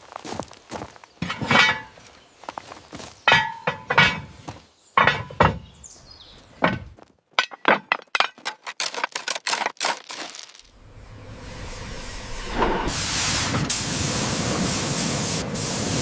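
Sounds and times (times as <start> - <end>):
tools clinking on metal: 3.3 - 4.3
spraying hiss: 11.1 - 16.0.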